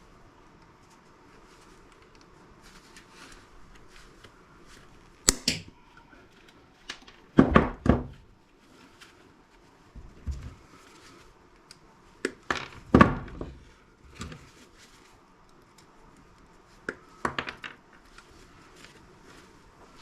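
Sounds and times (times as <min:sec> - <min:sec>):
small clicks and rustling of parts: 0:14.1 - 0:19.5.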